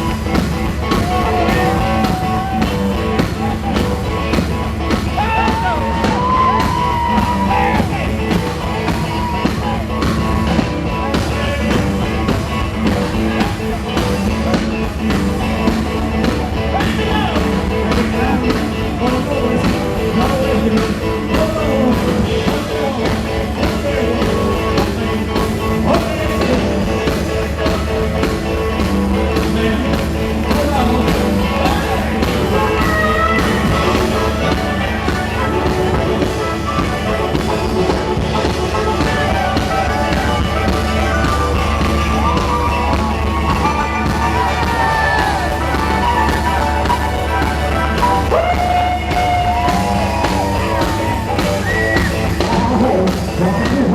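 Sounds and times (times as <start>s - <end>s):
bass guitar: 0.0s - 53.9s
drums: 0.0s - 53.9s
electric guitar: 0.0s - 53.9s
person singing: 0.0s - 53.9s.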